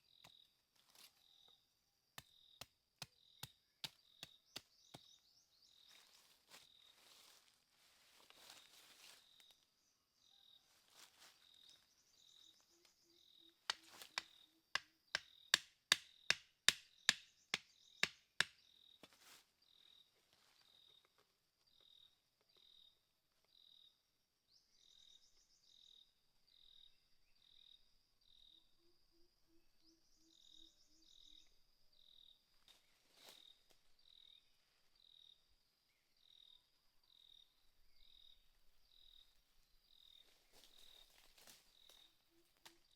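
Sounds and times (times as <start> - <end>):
insects chirping: 0.0 - 42.9
sharp knocks on wood: 13.7 - 18.5.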